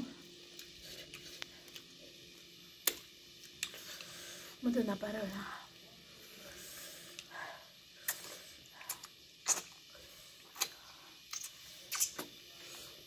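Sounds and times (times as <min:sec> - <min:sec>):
mouth clicks and wet smacks: 0:08.0 - 0:09.8, 0:10.4 - 0:12.4.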